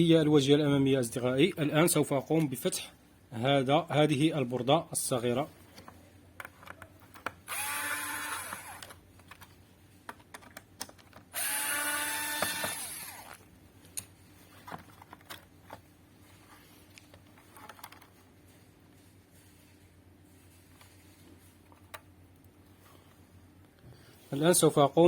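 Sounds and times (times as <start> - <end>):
electric screwdriver running: 7.5 - 8.9, 11.4 - 13.4.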